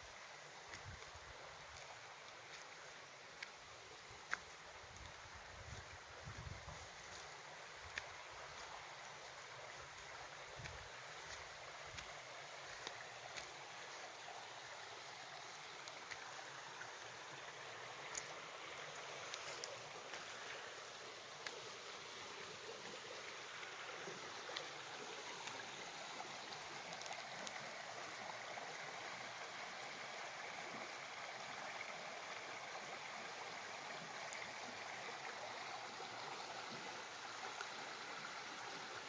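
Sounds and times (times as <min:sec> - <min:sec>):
running water rushing: 0:00.0 - 0:39.0
faint ticks: 0:00.7 - 0:03.6, 0:04.2 - 0:06.0, 0:07.0 - 0:08.8, 0:10.6 - 0:14.1, 0:18.0 - 0:20.6, 0:26.9 - 0:28.2.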